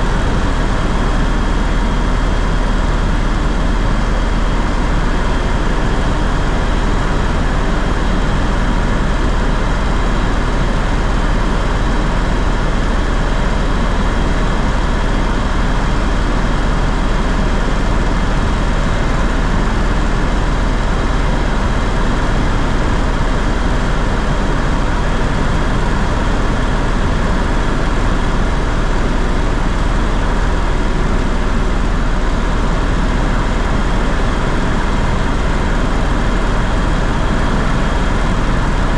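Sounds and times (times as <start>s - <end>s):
aircraft engine drone: 0.0s - 38.9s.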